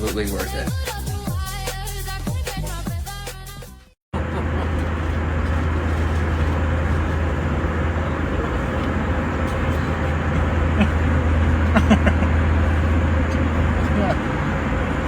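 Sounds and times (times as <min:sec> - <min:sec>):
vehicle rumble and hiss: 0:04.2 - 0:15.0.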